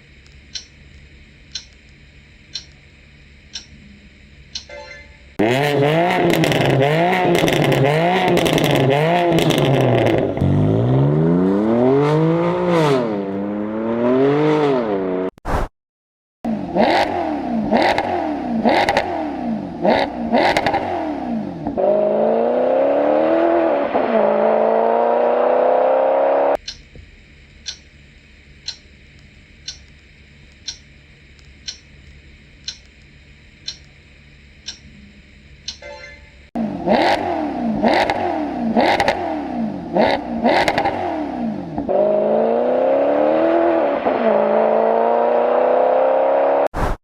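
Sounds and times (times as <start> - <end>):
faint clock-like ticking: 0.4 - 0.8, 1.4 - 1.9, 2.5 - 2.8, 3.5 - 3.8, 27.6 - 27.9, 28.6 - 28.9, 29.6 - 30.9, 31.5 - 34.0, 34.6 - 35.0
car engine revving and accelerating: 5.4 - 15.3, 16.5 - 26.6, 36.6 - 46.7
engine revving with pops and crackles: 5.4 - 15.4, 16.5 - 35.8, 36.5 - 47.0.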